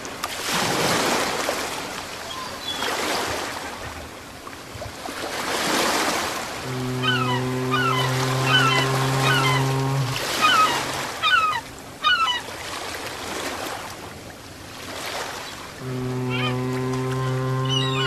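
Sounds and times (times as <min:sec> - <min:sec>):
ocean surf washing: 0:00.0 - 0:18.0
deep horn-like tone: 0:06.7 - 0:10.2, 0:15.8 - 0:18.0.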